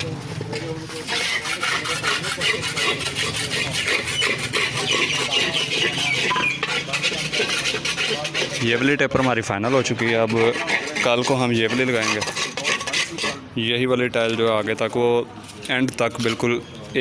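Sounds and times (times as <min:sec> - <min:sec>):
tool scraping tiles: 0:00.0 - 0:13.5.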